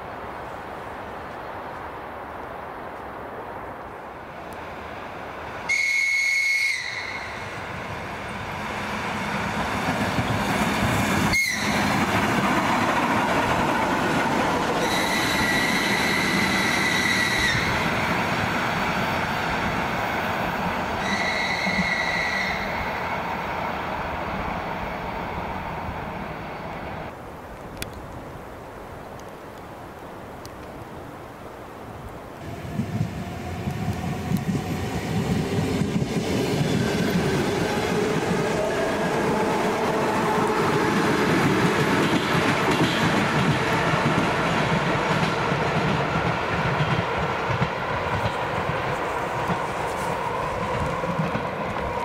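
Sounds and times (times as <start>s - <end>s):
train rumbling past: 4.2s - 27.2s, 32.4s - 52.0s
high-pitched train horn: 5.7s - 7.6s, 11.3s - 12.0s, 14.8s - 17.8s, 21.0s - 23.0s.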